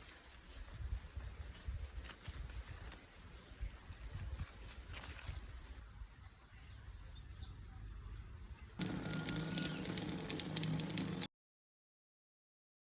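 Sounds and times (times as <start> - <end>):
faint high bird chirps: 8.9 - 10.0.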